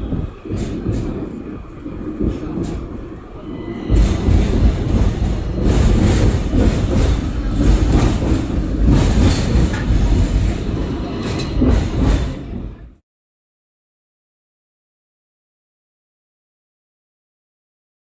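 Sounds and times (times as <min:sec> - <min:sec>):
train low rumble: 0:00.0 - 0:13.0
clattering knocks: 0:03.9 - 0:12.6.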